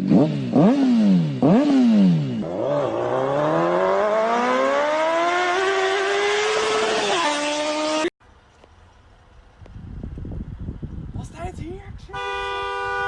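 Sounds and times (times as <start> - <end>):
engine revving: 0.0 - 8.1.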